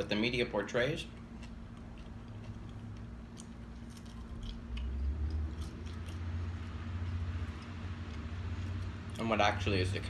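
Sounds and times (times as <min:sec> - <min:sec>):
low background rumble: 0:00.0 - 0:10.0
person chewing fries: 0:01.0 - 0:09.4.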